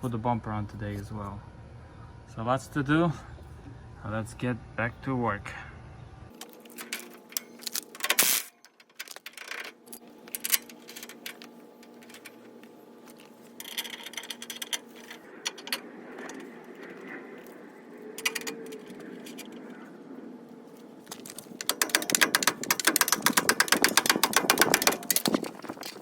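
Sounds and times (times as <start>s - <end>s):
steady low hum: 0.0s - 26.0s
metallic tool clinks and rattles: 21.1s - 26.0s.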